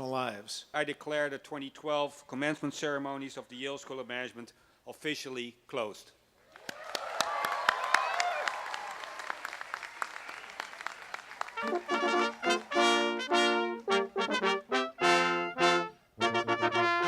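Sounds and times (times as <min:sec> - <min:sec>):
applause: 0:06.5 - 0:13.3
brass ensemble playing: 0:11.5 - 0:17.0.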